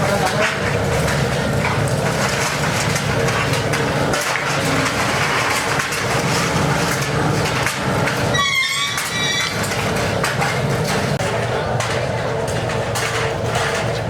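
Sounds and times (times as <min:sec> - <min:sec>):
metal rattling and knocking: 0:00.0 - 0:14.0
high metallic squeal: 0:08.3 - 0:09.8.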